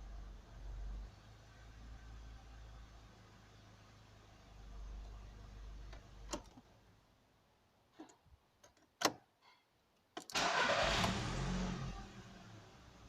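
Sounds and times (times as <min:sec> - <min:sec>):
car engine starting and revving: 0:10.4 - 0:13.0.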